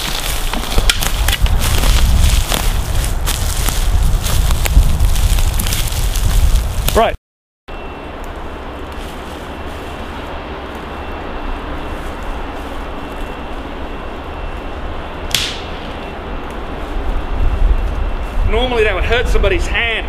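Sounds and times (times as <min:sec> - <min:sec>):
wind buffeting microphone: 0:00.0 - 0:07.2, 0:11.4 - 0:19.7.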